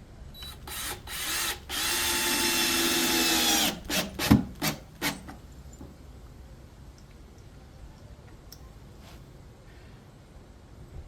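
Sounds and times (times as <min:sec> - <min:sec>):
power drill driving screw into wood: 0:00.4 - 0:05.3.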